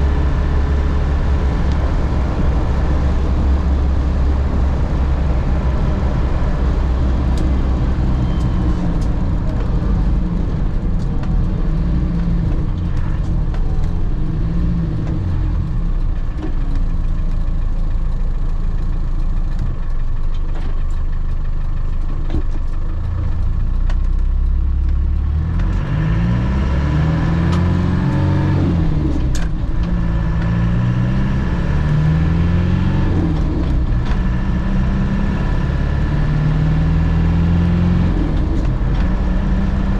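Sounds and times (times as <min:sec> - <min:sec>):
car engine revving: 0:00.0 - 0:16.0, 0:24.5 - 0:39.9
road noise: 0:00.0 - 0:39.9.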